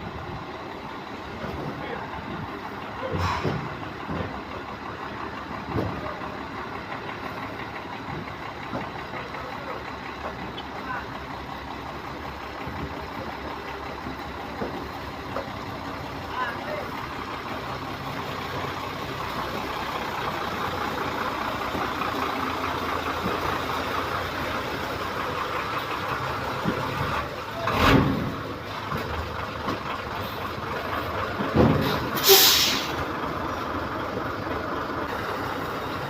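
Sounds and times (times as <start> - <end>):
vehicle and street noise: 0.0 - 36.0
loud hissing bursts: 32.2 - 33.0.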